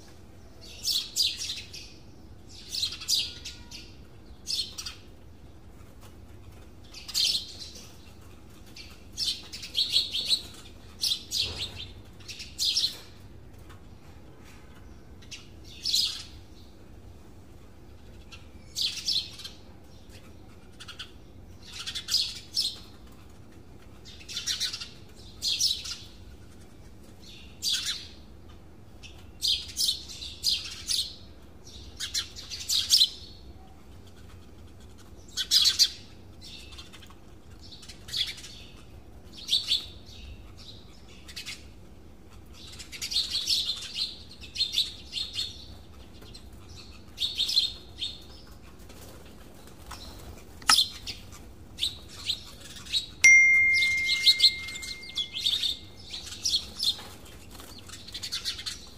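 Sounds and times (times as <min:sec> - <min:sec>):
birds chirping: 0:49.6 - 0:58.9
steady high tone: 0:53.2 - 0:55.8.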